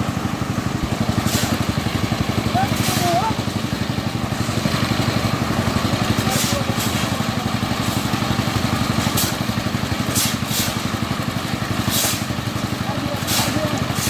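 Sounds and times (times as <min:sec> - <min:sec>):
machinery engine running: 0:00.0 - 0:14.0
brief hisses: 0:10.2 - 0:10.8.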